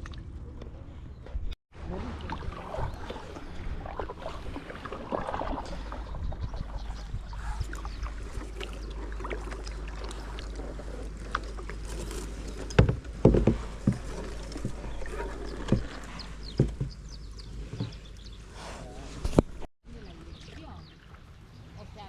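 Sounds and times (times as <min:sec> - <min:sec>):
paddle splashing in water: 0:01.8 - 0:21.4
water drips: 0:02.0 - 0:11.8
paddle knocks: 0:12.5 - 0:17.1.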